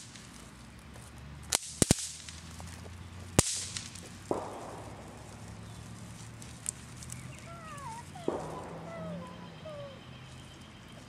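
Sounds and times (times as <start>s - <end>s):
bang snaps cracking: 3.4s - 5.8s, 8.1s - 9.2s.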